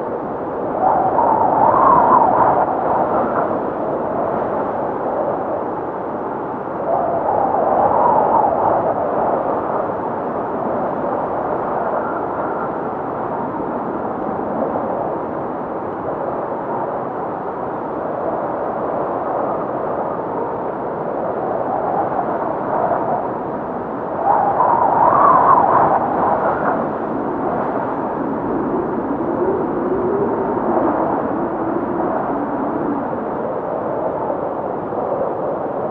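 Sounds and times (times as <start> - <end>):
blizzard wind howling: 0.0 - 35.9.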